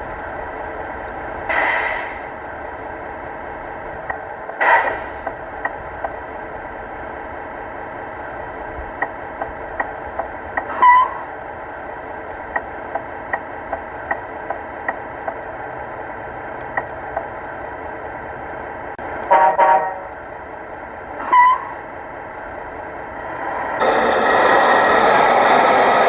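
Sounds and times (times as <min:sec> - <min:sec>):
regular ticking: 0:02.3 - 0:19.3
vehicle horn blasts: 0:19.3 - 0:20.2.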